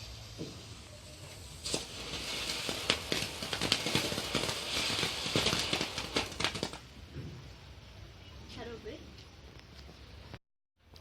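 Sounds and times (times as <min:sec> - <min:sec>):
firecrackers popping and crackling: 0:00.0 - 0:07.1.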